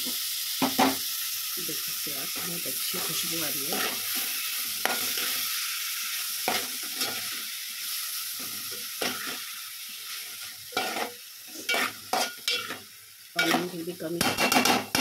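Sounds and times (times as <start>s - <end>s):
mushrooms sizzling in pan: 0.0s - 15.0s
metal spoon scraping pan: 2.4s - 5.4s, 6.5s - 7.4s, 9.0s - 9.4s, 10.7s - 12.8s, 13.4s - 15.0s.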